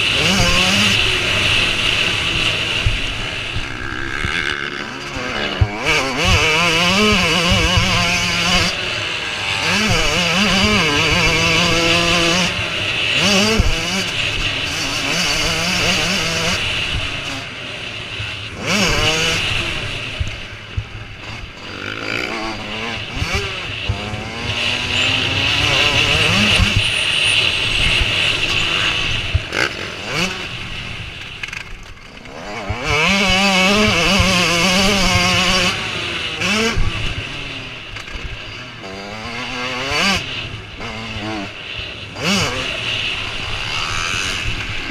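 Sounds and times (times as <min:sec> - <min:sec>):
motocross bike engines revving: 0:00.0 - 0:44.9.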